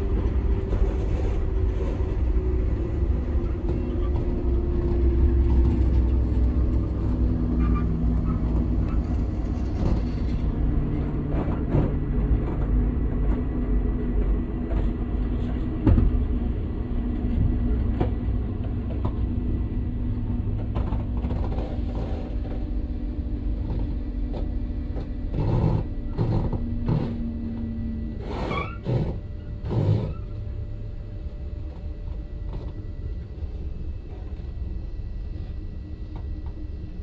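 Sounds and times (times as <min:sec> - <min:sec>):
train rumble inside passenger car: 0:00.0 - 0:37.0.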